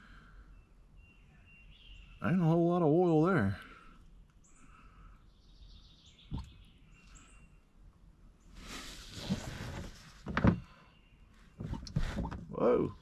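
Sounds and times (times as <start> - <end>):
faint high bird chirps: 0.3 - 2.9, 4.4 - 7.7, 10.7 - 11.6.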